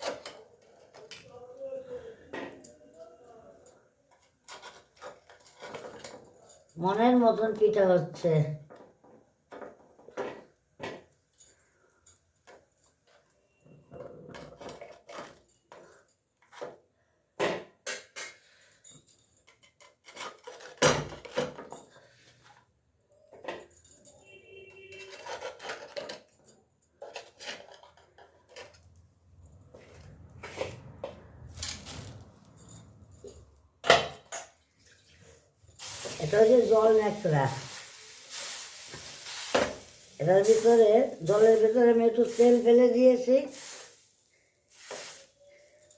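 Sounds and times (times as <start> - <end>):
kitchen utensils clinking and scraping: 0.0 - 1.4, 3.7 - 7.9, 12.4 - 16.9, 19.4 - 45.9.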